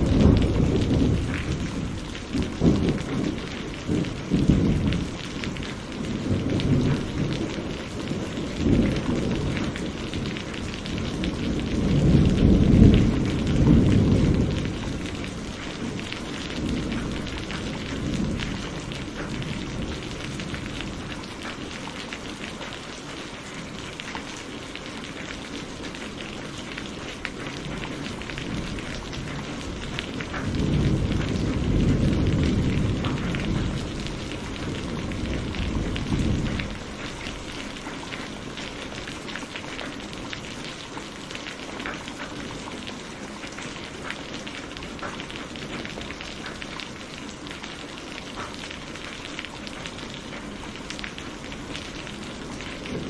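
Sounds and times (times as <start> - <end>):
rolling thunder: 0.0 - 22.1, 26.2 - 39.2, 48.4 - 53.0
steady rain: 0.0 - 53.0.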